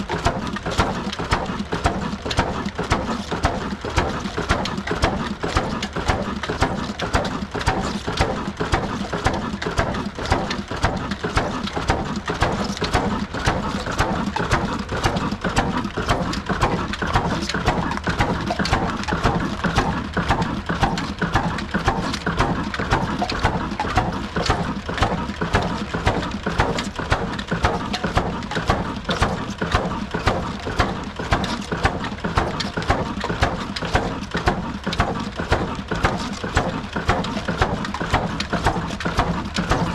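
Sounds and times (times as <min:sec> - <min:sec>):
diesel engine running steadily: 0:00.0 - 0:39.9
flour mill knocking: 0:00.0 - 0:39.9.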